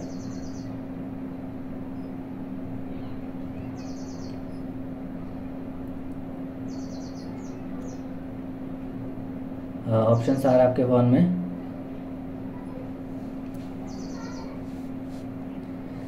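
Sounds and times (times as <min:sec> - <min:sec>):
small bird chirping: 0:00.0 - 0:00.9, 0:01.9 - 0:02.3, 0:03.0 - 0:05.4, 0:06.6 - 0:08.2, 0:13.8 - 0:14.6
steady low hum: 0:00.0 - 0:16.0.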